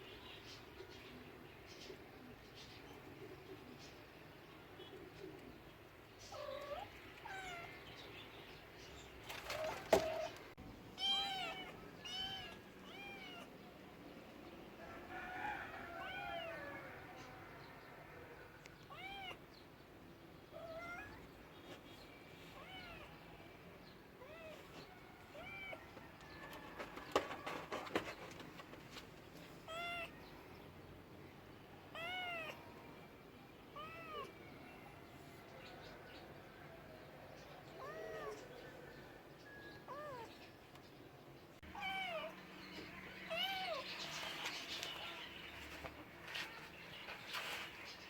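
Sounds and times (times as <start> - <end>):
cat meowing: 11.0 - 13.5, 18.9 - 19.4, 20.6 - 21.3, 22.6 - 23.1, 29.7 - 30.2, 31.9 - 32.6, 33.8 - 34.4, 37.8 - 38.5, 39.9 - 40.3, 41.7 - 42.4, 43.3 - 43.8.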